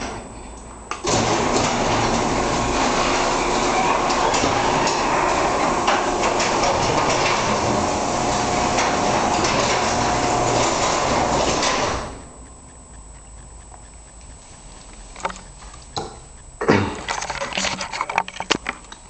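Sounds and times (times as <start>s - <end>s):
garage door rolling on tracks: 0.9s - 12.3s.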